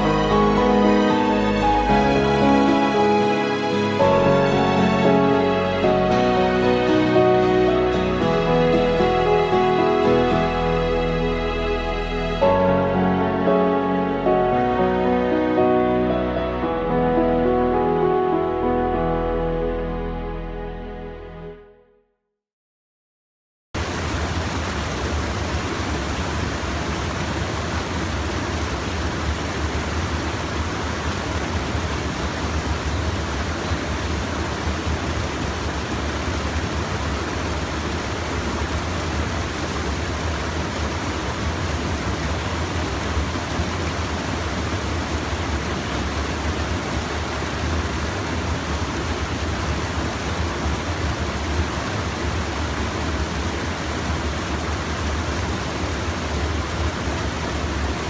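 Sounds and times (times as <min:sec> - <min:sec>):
water pouring over dam: 0:23.8 - 0:58.0.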